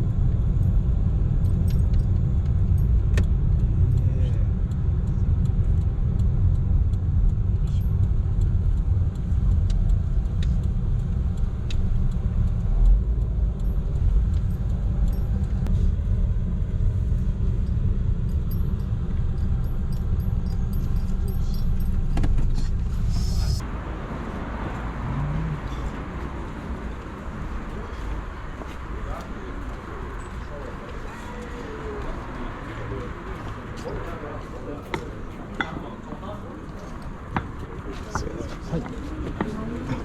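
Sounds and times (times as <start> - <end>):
car road rumble from inside: 0.0 - 40.0.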